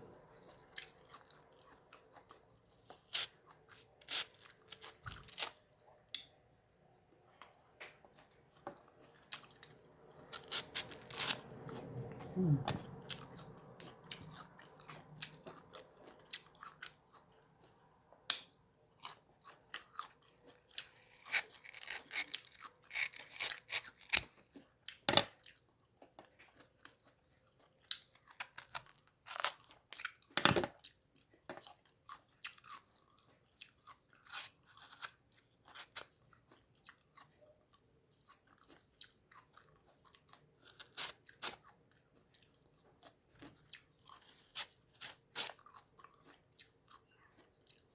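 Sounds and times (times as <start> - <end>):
biting and chewing crisp fruit: 0.0 - 47.9
mouth sounds: 12.1 - 13.0.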